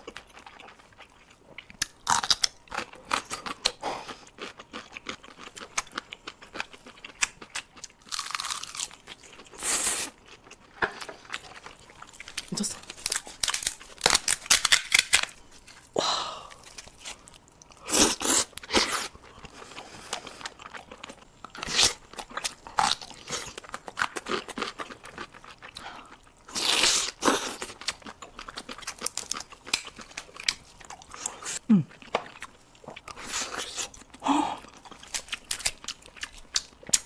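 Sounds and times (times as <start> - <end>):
crab shell crunching: 11.5 - 15.8, 34.7 - 37.0.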